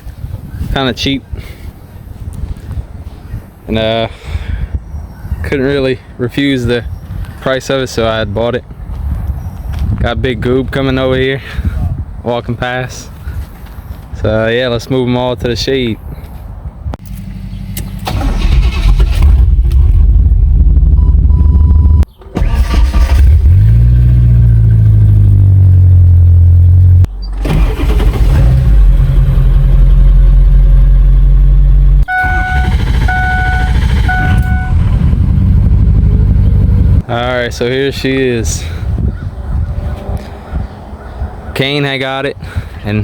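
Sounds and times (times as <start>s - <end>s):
pickup truck engines running: 22.2s - 37.1s
vehicle warning chime beeping: 32.0s - 35.1s.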